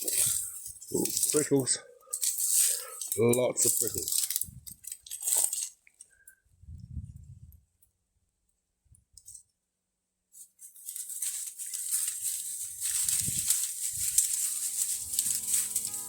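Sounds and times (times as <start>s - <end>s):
dry leaves crackling underfoot: 0.0s - 5.8s, 10.4s - 16.0s
scrub rustling against clothing: 10.4s - 16.0s
acoustic guitar music: 14.2s - 16.0s.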